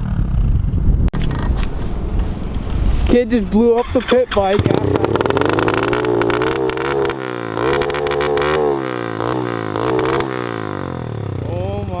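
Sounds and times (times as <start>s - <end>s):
small motorbike engine revving: 3.8s - 12.0s.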